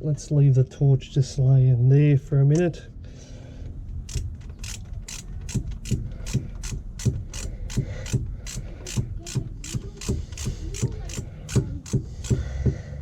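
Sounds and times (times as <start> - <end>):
socket ratchet clicking: 4.0 - 12.5.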